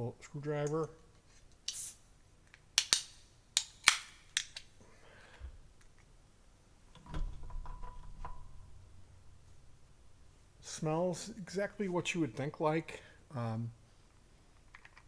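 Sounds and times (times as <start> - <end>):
metallic clicks and snaps: 0.6 - 6.1, 14.6 - 15.0
low rumbling handling noise: 6.8 - 10.7.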